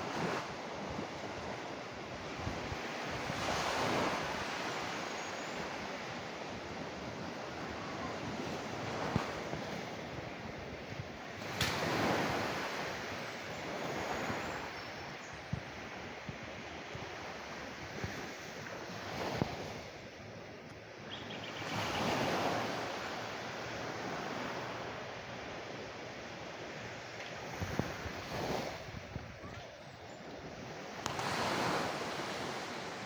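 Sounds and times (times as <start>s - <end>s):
sea waves washing onto shore: 0.0s - 14.8s, 21.6s - 33.0s.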